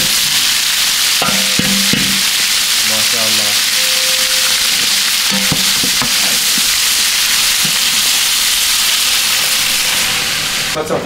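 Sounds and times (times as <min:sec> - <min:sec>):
meat and onions sizzling in oil: 0:00.0 - 0:11.0
spoon knocking against pot: 0:05.3 - 0:06.3.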